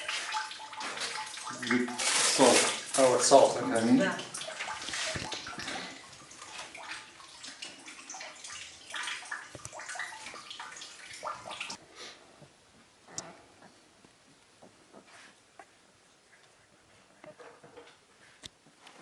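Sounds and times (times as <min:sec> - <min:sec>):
liquid sloshing in container: 0:00.0 - 0:11.8
small splashes and drips: 0:00.0 - 0:11.8.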